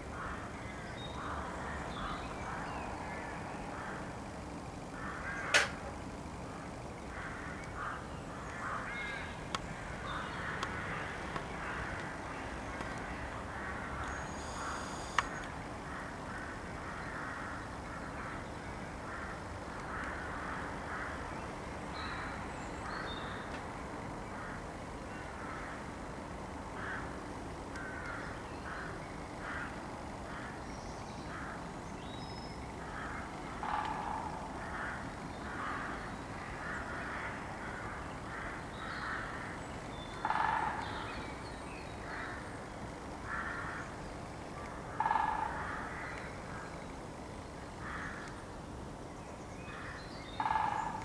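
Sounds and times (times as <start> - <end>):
louder lower bird calls: 13.2 - 18.4, 49.7 - 51.0.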